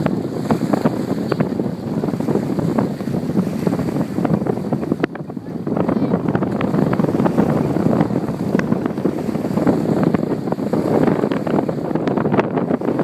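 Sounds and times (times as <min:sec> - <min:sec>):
water rushing and splashing: 0:00.0 - 0:13.0
wind buffeting microphone: 0:00.0 - 0:13.0.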